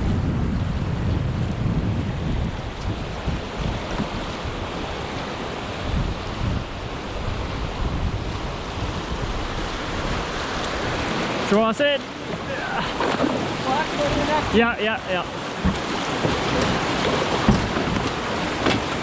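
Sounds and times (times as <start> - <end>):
wind buffeting microphone: 0.0 - 11.5, 12.1 - 19.0
river rapids rushing: 9.5 - 19.0.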